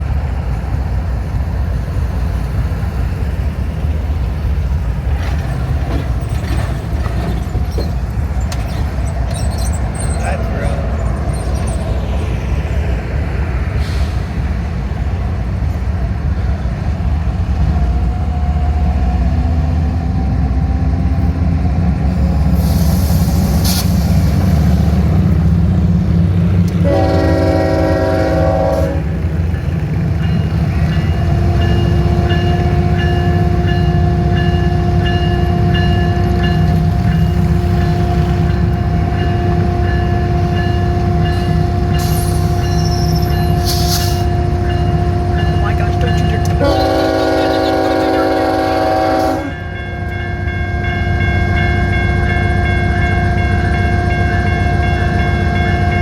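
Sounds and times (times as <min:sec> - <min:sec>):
diesel locomotives rumbling: 0:00.0 - 0:56.0
train horn: 0:26.7 - 0:29.2, 0:37.6 - 0:56.0.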